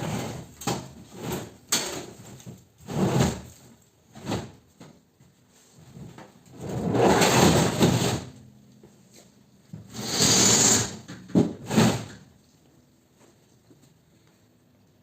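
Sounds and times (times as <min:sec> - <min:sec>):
long scraping noises: 0:09.9 - 0:11.1.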